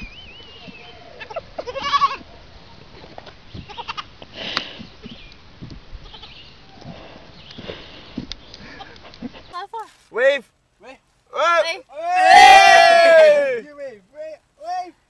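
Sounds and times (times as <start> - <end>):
goat kid bleating: 0.8 - 2.3, 3.6 - 4.1, 6.0 - 6.4.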